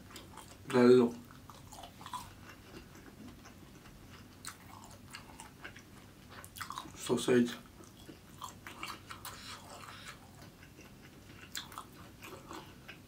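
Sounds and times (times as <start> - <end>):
person chewing food: 0.0 - 7.0, 7.6 - 13.0.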